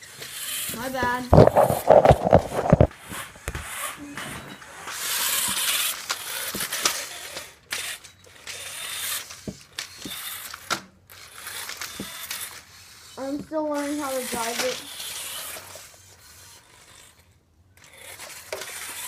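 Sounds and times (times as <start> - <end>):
toy car motor and gears: 0.0 - 19.0
sharp clicks and knocks: 0.8 - 3.7.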